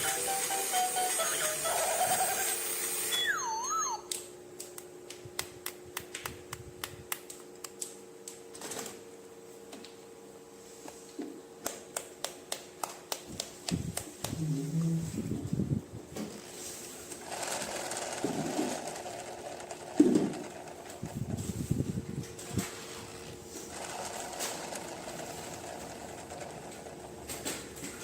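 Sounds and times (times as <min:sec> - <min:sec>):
faint steady hum: 0:00.0 - 0:17.2.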